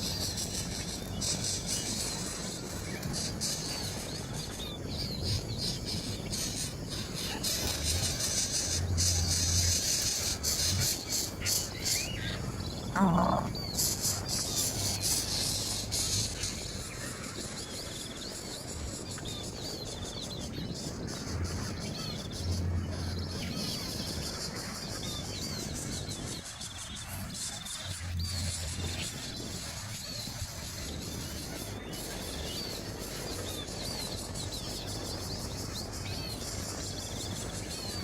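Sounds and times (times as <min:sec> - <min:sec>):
outdoor background noise: 0:00.0 - 0:38.0
small birds chirping: 0:00.0 - 0:38.0
lower bird call: 0:07.1 - 0:14.2.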